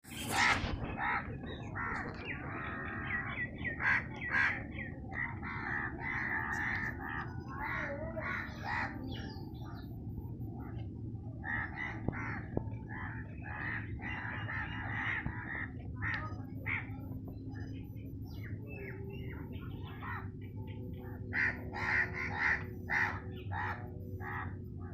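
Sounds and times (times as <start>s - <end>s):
steady low hum: 0.0s - 24.9s
crows cawing: 0.2s - 9.8s, 11.4s - 17.0s, 21.2s - 24.9s.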